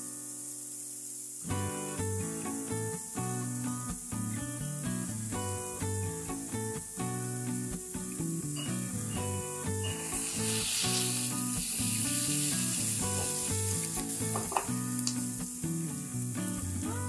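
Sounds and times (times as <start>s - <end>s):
sausage sizzling in frying pan: 0.0s - 17.0s
soft background music: 1.4s - 17.0s
spatula stirring in pan: 9.9s - 14.8s.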